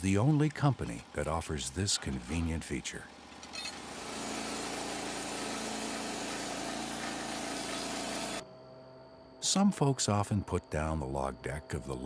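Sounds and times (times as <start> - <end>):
sawmill engine running: 0.0 - 8.4.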